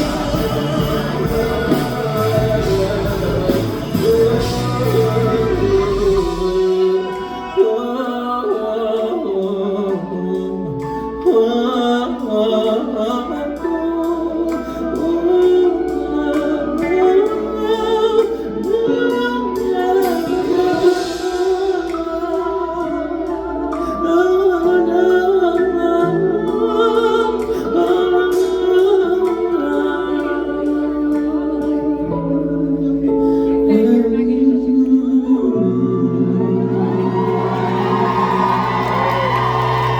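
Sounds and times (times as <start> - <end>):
rnb band with singing: 0.0 - 39.9.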